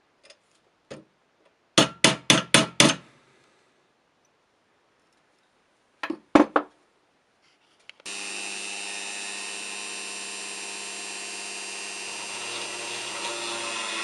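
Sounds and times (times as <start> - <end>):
small electric power tool running: 8.0 - 14.0.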